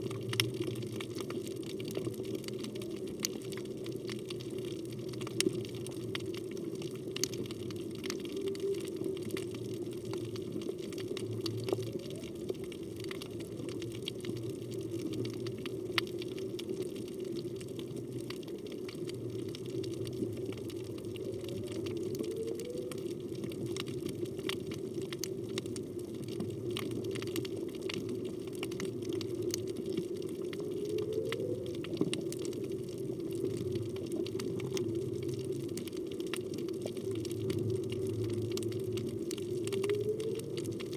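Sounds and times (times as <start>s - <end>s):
crackle of reef clicks: 0.0s - 40.9s
faint rising whale tones: 6.8s - 15.5s, 17.9s - 40.9s.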